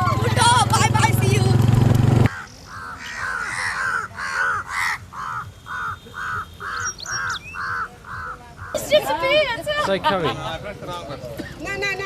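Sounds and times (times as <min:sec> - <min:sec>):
bird giving harsh calls: 0:02.3 - 0:09.0.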